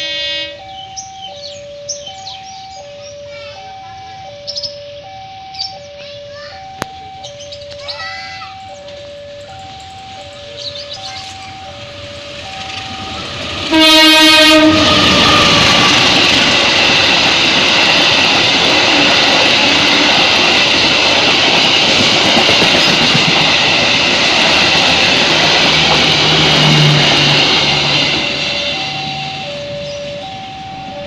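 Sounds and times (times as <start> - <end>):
diesel locomotive horn: 0.0 - 0.9, 9.4 - 17.6, 24.4 - 30.5
train wheels rushing on rail: 8.2 - 31.0.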